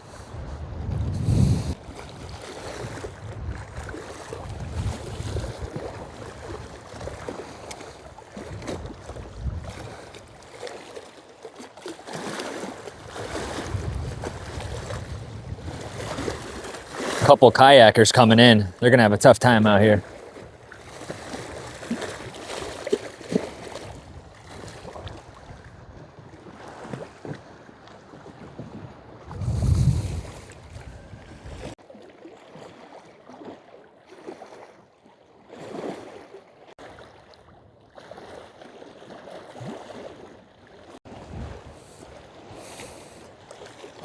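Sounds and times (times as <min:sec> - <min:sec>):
wind buffeting microphone: 0:00.0 - 0:07.4, 0:08.3 - 0:10.4, 0:13.0 - 0:17.3, 0:23.6 - 0:31.8, 0:41.1 - 0:42.7
waves washing against shore: 0:00.0 - 0:31.8, 0:39.4 - 0:44.0.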